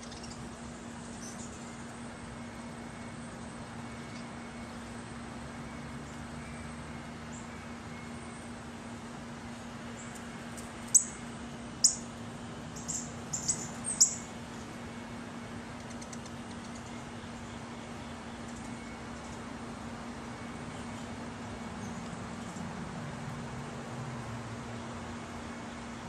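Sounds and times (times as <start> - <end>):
steady low hum: 0.0 - 26.0
high-pitched bird chirps: 10.9 - 11.2, 11.8 - 12.1, 12.8 - 14.3.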